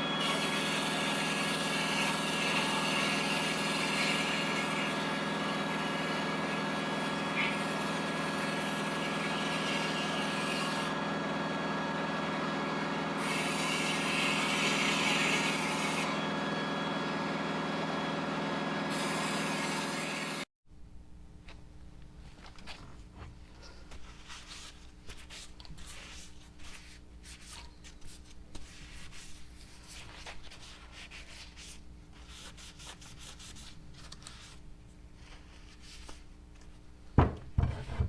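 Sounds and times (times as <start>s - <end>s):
machine droning hum: 20.7s - 38.0s.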